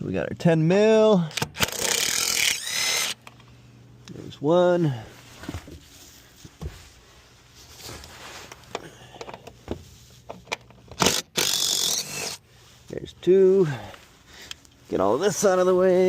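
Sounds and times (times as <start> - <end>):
loud rasping burst: 1.6 - 3.2, 11.0 - 12.4.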